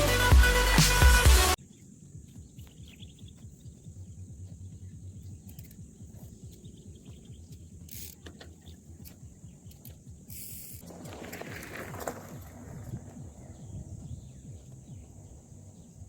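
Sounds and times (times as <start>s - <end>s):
insect chorus: 1.6s - 16.0s
wind rumble on microphone: 10.3s - 16.0s.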